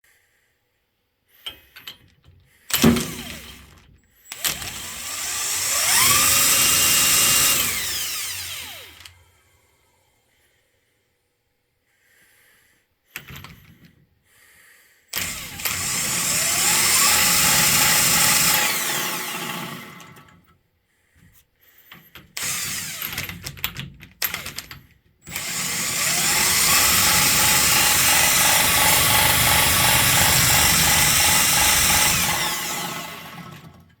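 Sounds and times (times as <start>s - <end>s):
alternator whining: 25.3s - 33.5s.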